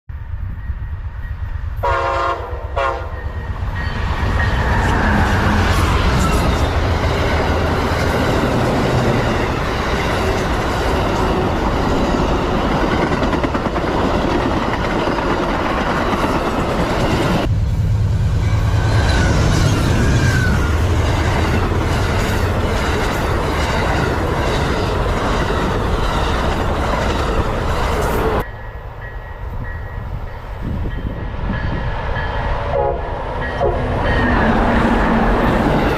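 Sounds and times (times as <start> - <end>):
train rumbling past: 0.1 - 35.9
train horn blasts: 1.8 - 3.6, 32.7 - 35.2.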